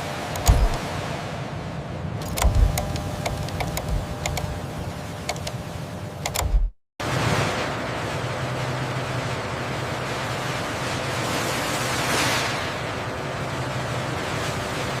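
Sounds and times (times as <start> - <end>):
rushing machine noise: 0.3 - 1.0, 2.2 - 12.0
low hum: 0.4 - 1.0, 2.2 - 6.8.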